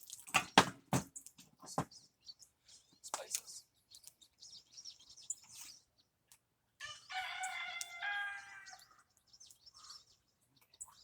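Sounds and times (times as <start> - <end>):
rooster crowing: 6.8 - 8.9.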